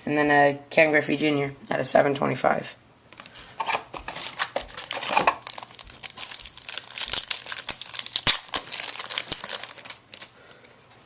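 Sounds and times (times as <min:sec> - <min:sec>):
foil wrapper crinkling and tearing: 0:03.6 - 0:10.7.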